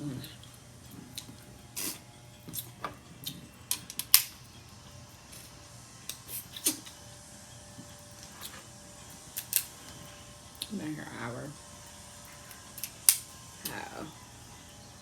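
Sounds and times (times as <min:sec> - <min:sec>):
crab shells cracking: 0:01.2 - 0:04.4, 0:09.2 - 0:09.8, 0:12.2 - 0:13.3.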